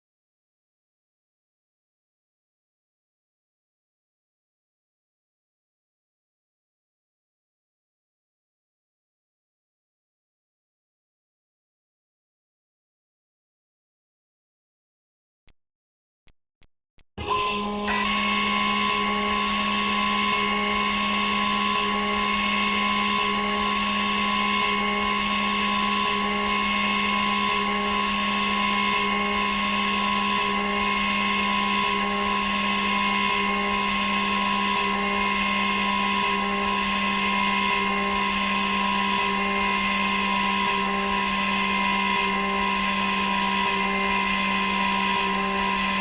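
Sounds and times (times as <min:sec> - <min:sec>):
machine motor whine: 0:17.2 - 0:46.0.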